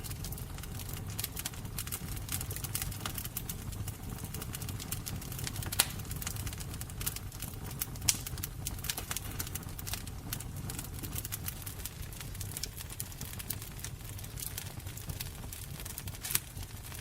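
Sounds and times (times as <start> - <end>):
burning wood crackling: 0.0 - 17.0
fire popping: 0.0 - 17.0
fire rumbling: 0.0 - 17.0.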